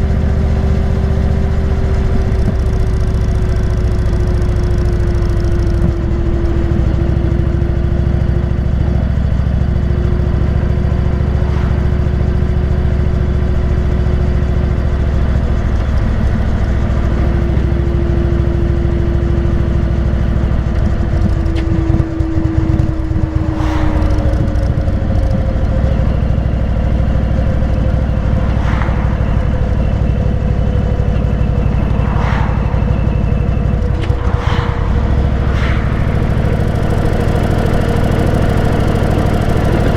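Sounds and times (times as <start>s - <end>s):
short engine rasps: 27.2s - 39.9s.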